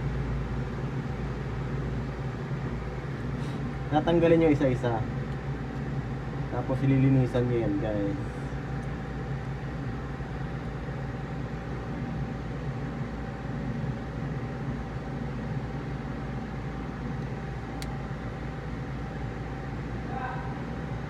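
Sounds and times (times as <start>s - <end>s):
small click: 17.2s - 18.0s.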